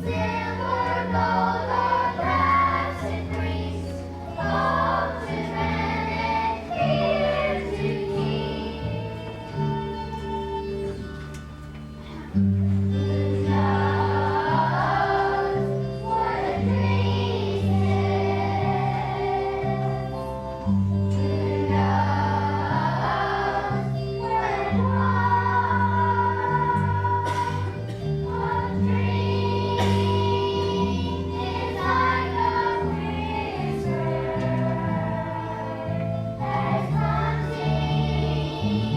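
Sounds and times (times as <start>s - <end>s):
children's choir singing: 0.0s - 11.0s, 12.0s - 38.9s
instrumental accompaniment with bass: 0.0s - 38.9s
bass line: 20.7s - 38.9s.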